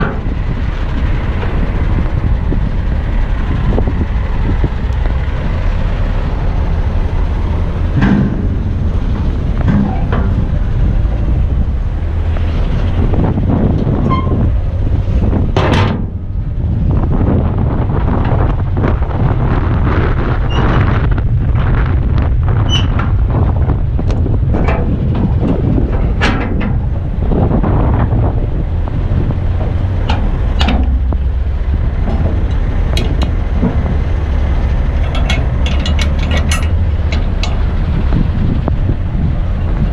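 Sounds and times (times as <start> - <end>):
knocks and rattles: 0.0 - 17.2, 17.8 - 39.9
diesel truck engine rumbling: 0.0 - 39.9
wind buffeting microphone: 0.0 - 39.9
loud clunk: 7.8 - 11.2, 15.5 - 16.4, 24.5 - 27.0, 29.2 - 34.3
short metallic knocks: 7.9 - 10.8, 29.6 - 37.8
brief squeaks: 22.7 - 23.0.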